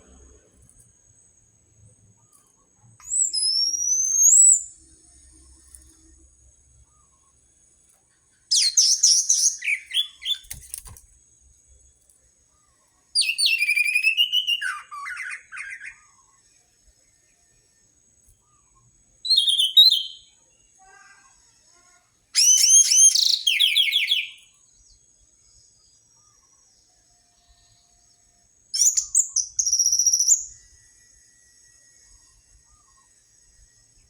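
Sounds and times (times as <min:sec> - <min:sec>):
thrush singing whistled notes: 0:02.2 - 0:06.2, 0:08.4 - 0:11.0, 0:13.1 - 0:17.4, 0:18.2 - 0:20.7, 0:22.4 - 0:34.0.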